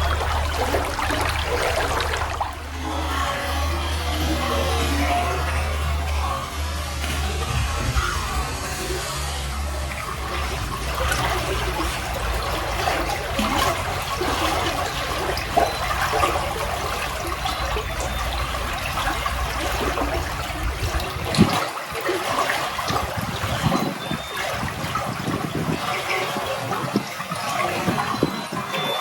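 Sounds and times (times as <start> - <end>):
low rumble: 0.0 - 21.5
running water: 0.0 - 29.0.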